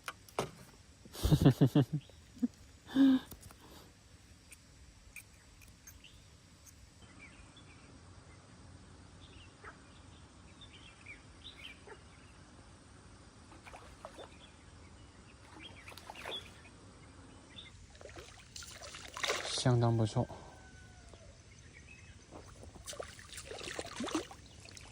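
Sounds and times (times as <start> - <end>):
faint bird chirps: 13.6 - 17.8, 19.6 - 22.8.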